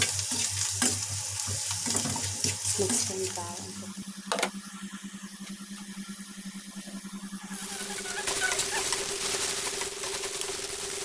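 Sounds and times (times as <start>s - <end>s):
onions frying in a pan: 0.0s - 4.1s, 7.4s - 11.0s
steady low hum: 2.2s - 9.7s.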